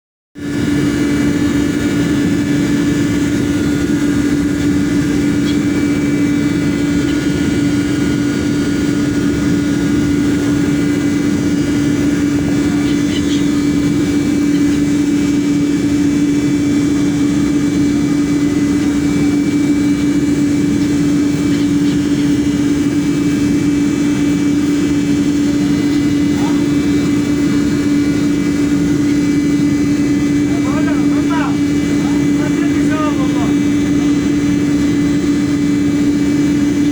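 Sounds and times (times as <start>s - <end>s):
engine droning: 0.4s - 36.9s.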